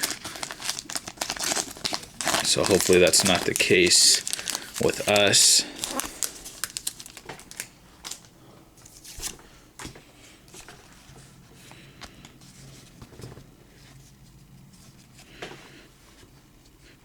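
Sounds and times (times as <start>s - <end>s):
cards and wrapper rustling: 0.0s - 9.4s.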